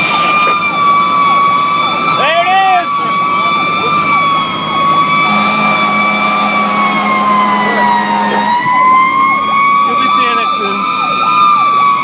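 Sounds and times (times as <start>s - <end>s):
fire engine siren: 0.0s - 12.0s.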